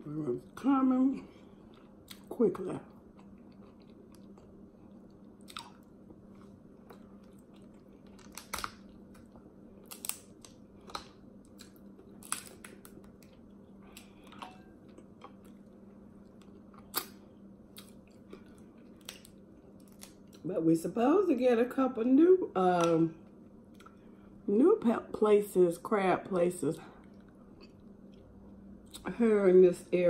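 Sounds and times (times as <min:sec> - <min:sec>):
chewing and mouth smacking: 0:01.4 - 0:20.4
crab shells cracking: 0:06.9 - 0:20.4.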